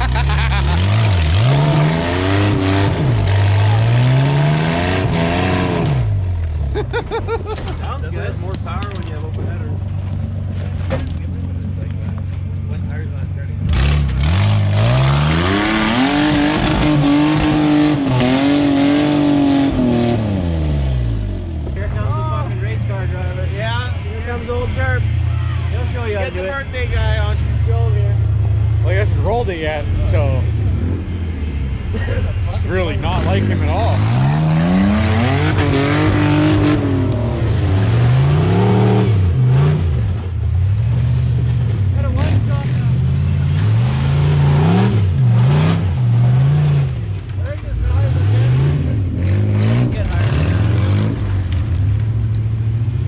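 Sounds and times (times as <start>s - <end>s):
engine revving hard: 0.0s - 6.2s, 13.6s - 21.3s, 32.6s - 40.1s, 42.0s - 47.0s, 47.7s - 51.6s.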